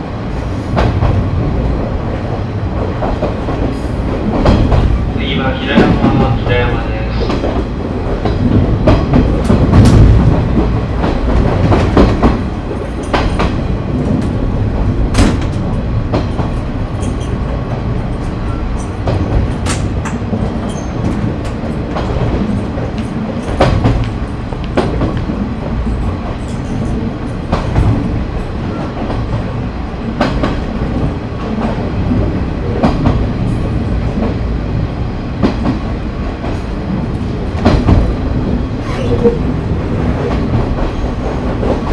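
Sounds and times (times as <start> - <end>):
railcar engine rumble: 0.0 - 41.9
wheels clacking over rail joints: 5.6 - 29.6.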